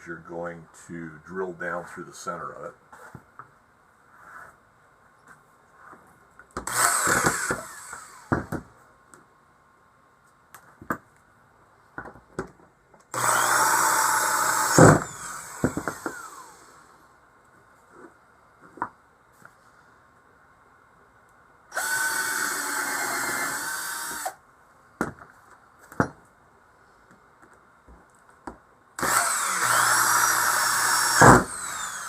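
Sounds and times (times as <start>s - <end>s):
power drill in wood: 6.6s - 8.6s, 13.1s - 16.9s, 21.7s - 24.4s, 29.0s - 32.0s.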